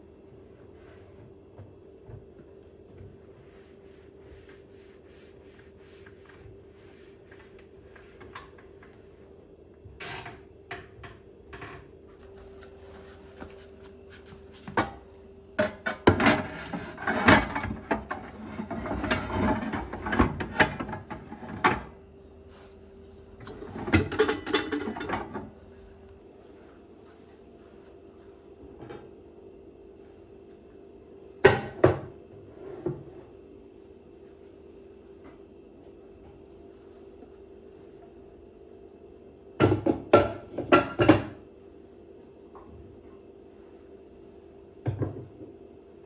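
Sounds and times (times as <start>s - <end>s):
faint hum: 0.0s - 46.0s
objects clattering and rattling: 23.4s - 25.5s.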